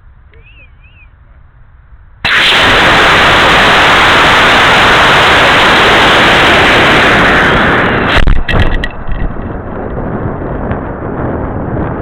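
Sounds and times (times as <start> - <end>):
rocket motor hissing rush: 2.2 - 9.8.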